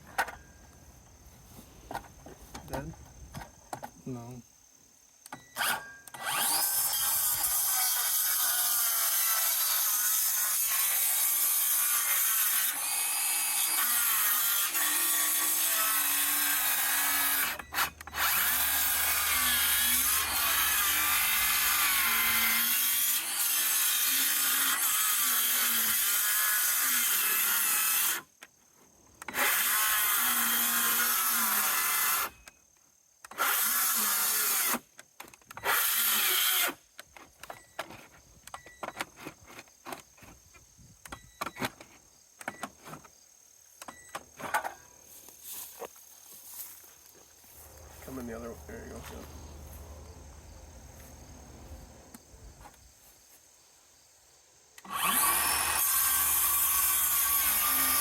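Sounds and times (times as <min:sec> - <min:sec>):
power saw cutting wood: 0:05.6 - 0:28.3, 0:29.3 - 0:32.4, 0:33.3 - 0:34.8, 0:35.6 - 0:36.8, 0:47.6 - 0:50.2, 0:54.8 - 0:58.0.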